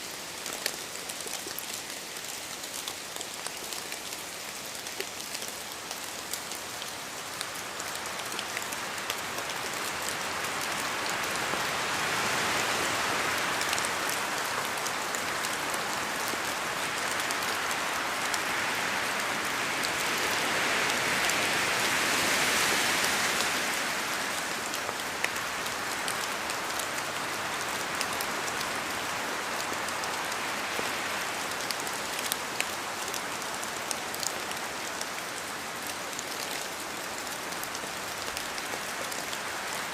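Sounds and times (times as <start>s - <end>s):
steady rain: 0.0s - 39.9s
wind gusts: 8.7s - 31.4s.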